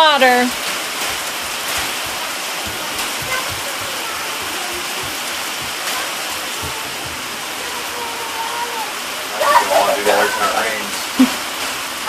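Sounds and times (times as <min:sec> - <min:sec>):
steady rain pouring: 0:00.0 - 0:12.0.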